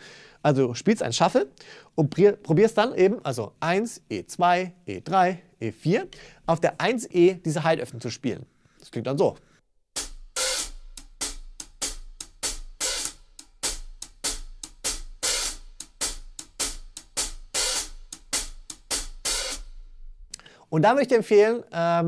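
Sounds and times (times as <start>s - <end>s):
hi-hat shuffle rhythm: 10.0s - 20.4s.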